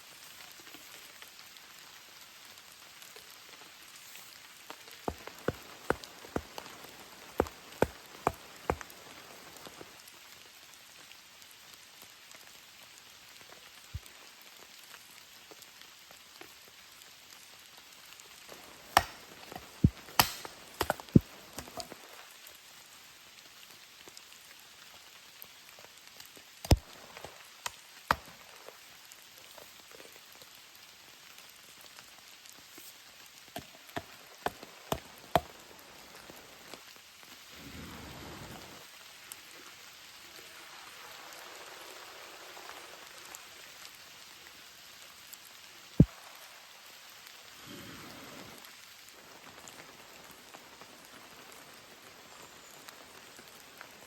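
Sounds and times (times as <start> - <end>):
steady rain: 0.0 - 54.0
sharp taps: 19.0 - 21.9.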